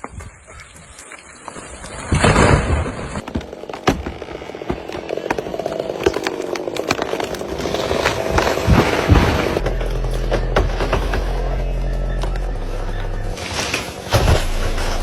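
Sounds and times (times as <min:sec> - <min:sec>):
wood cracking: 0:00.0 - 0:12.5
chainsaw cutting wood: 0:02.7 - 0:09.6.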